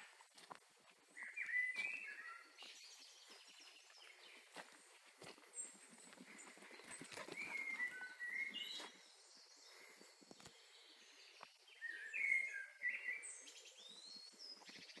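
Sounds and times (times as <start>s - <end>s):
songbird whistling: 1.2s - 2.7s, 7.3s - 9.0s, 11.8s - 14.2s.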